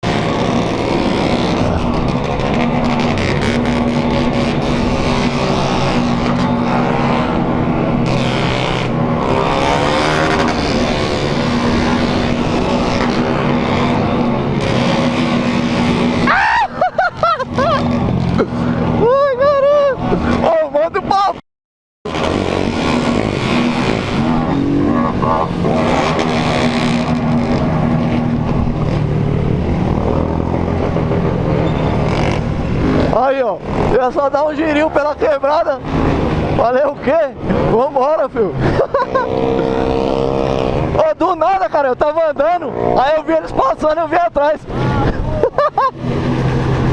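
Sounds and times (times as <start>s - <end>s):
motorcycle engine revving: 0.0s - 19.1s, 22.1s - 46.9s
motorcycle engines running: 0.0s - 21.4s, 22.1s - 46.9s
small motorcycle engines running: 37.7s - 40.8s.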